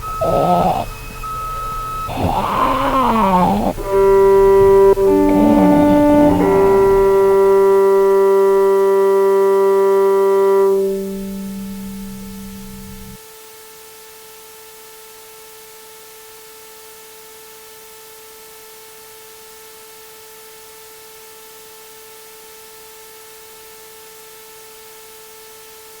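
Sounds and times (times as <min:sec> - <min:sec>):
steady electronic tone: 0:00.0 - 0:13.2
static hiss: 0:00.0 - 0:26.0.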